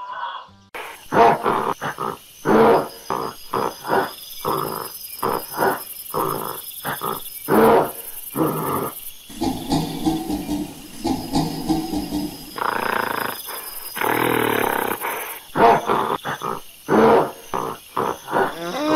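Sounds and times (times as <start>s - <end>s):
gorilla grunting and roaring: 0.0s - 18.9s.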